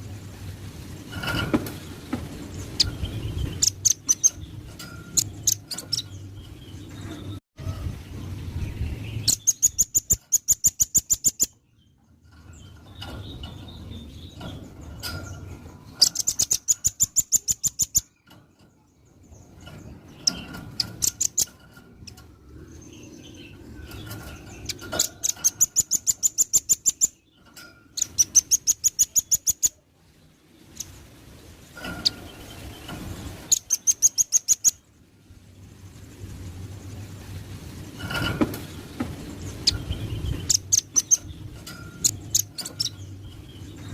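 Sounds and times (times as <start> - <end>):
low background rumble: 18.1 - 43.9.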